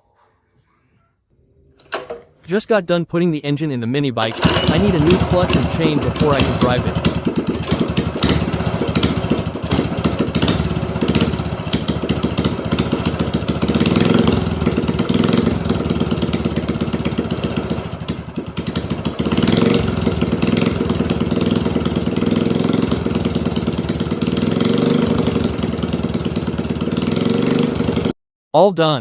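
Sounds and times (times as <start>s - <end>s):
small engine running: 4.2s - 28.1s.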